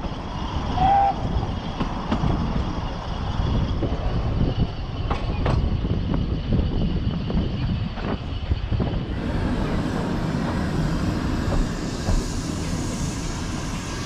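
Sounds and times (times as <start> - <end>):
rail clicks: 0.0 - 14.0
train running gear rumbling: 0.0 - 14.0.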